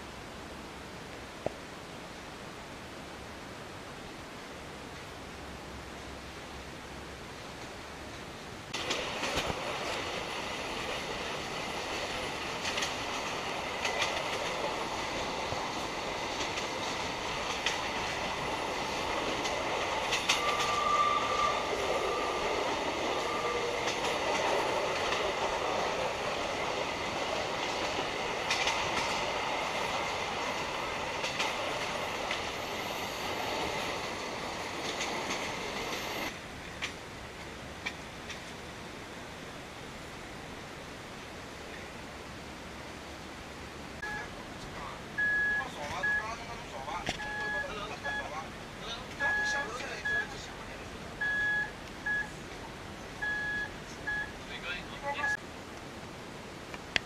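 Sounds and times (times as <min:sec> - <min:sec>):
train rolling rumble: 0:04.3 - 0:57.0
wheels clacking over rail joints: 0:07.6 - 0:38.7
wheel squeal: 0:20.3 - 0:22.4.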